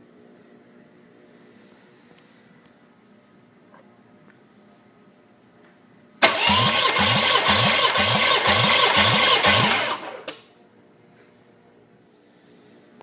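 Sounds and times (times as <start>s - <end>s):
starter motor cranking engine: 6.2s - 10.4s.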